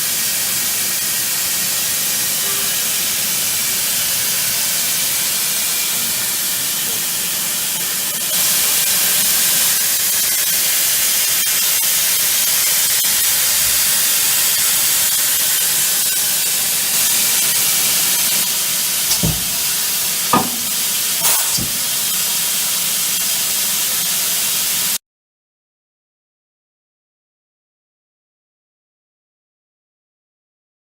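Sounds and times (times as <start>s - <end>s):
machining centre hissing: 18.7s - 22.8s
short knocks: 19.1s - 22.0s.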